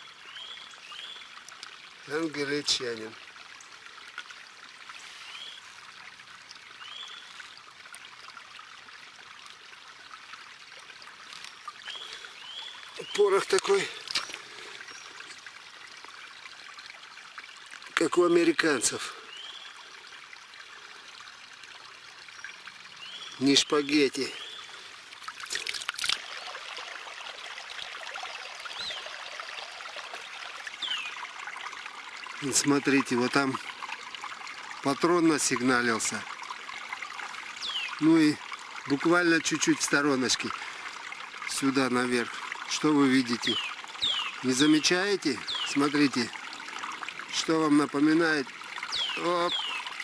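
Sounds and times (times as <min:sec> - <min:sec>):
steady outdoor hiss: 0:00.0 - 0:50.0
high bird chirps: 0:43.5 - 0:44.4, 0:48.9 - 0:49.9.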